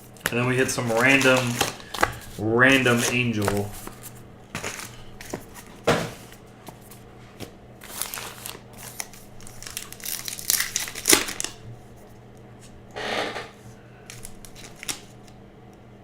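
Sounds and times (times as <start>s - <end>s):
card pack wrappers tearing: 0.0s - 7.0s, 7.8s - 11.6s, 14.1s - 15.4s
cards being handled: 0.0s - 11.6s, 14.1s - 15.4s.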